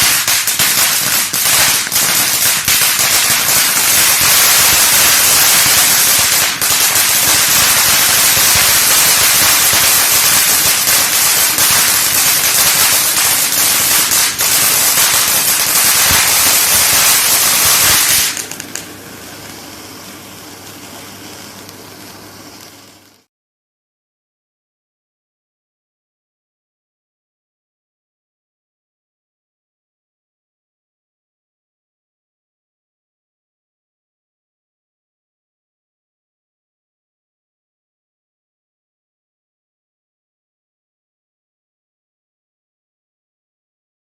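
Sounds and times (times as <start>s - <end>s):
faint hiss: 0.0s - 23.3s
fireworks crackling: 0.0s - 23.3s.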